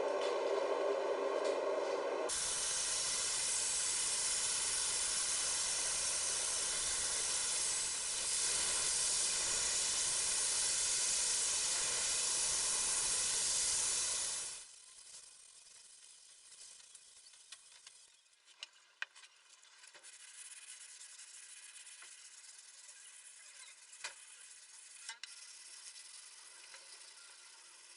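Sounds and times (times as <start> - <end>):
loud steady hiss: 0.0 - 14.7.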